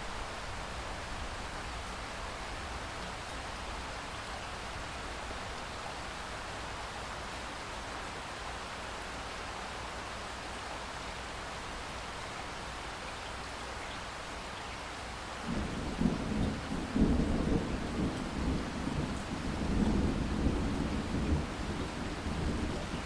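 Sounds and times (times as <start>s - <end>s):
steady rain: 0.0s - 23.0s
thunder rumbling: 15.5s - 23.0s.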